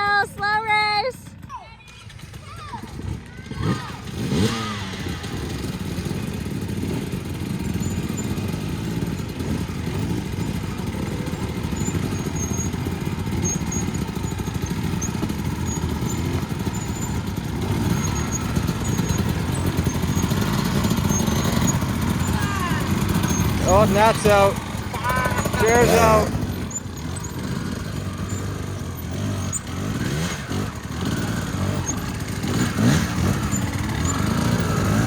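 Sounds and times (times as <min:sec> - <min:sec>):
dirt bike engines at low revs: 0:00.0 - 0:35.0.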